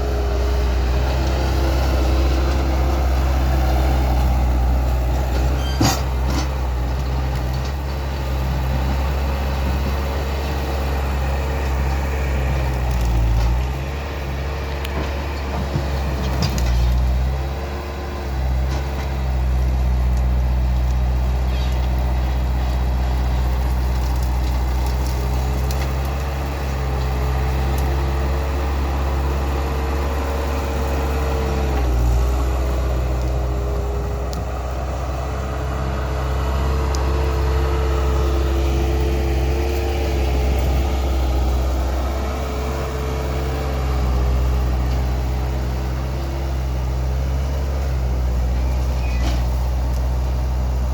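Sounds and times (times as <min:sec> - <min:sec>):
loader engine whine: 0:00.0 - 0:50.9.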